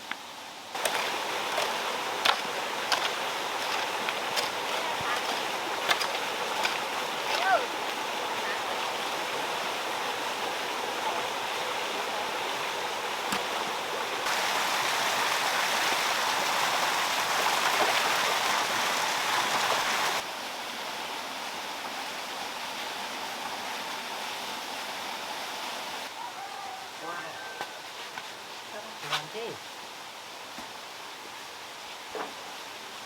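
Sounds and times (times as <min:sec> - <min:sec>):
water running and splashing: 0:00.7 - 0:20.2.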